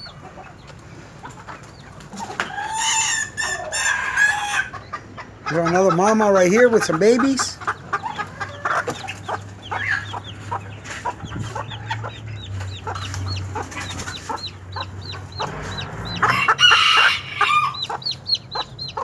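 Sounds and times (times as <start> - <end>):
chicks peeping: 0.0 - 19.0
hen clucking: 0.0 - 19.0
rooster crowing: 15.4 - 18.0.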